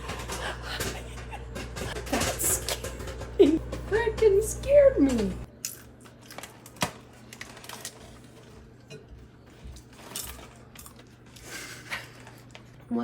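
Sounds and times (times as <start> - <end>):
popcorn popping: 0.0 - 8.0
microwave oven hum: 0.0 - 13.0.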